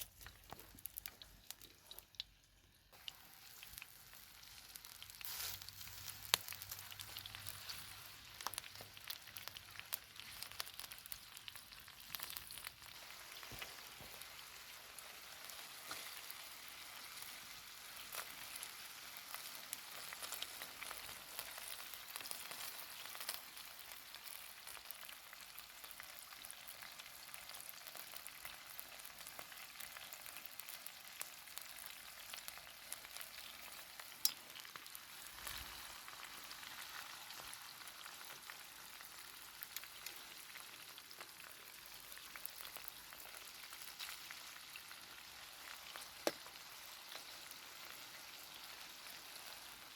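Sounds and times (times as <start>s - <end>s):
food sizzling in a pan: 0.0s - 49.9s
wood fire crackling: 0.0s - 49.9s.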